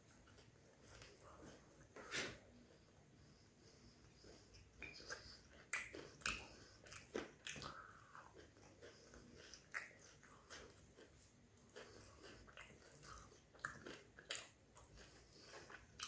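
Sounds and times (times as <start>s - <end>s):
close chewing with crisp crunches: 0.0s - 16.0s
wet mouth sounds: 4.6s - 10.7s.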